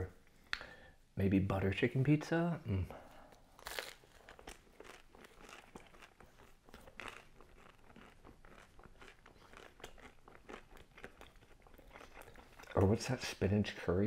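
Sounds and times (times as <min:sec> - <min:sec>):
person chewing crispy pizza: 0:03.2 - 0:13.0.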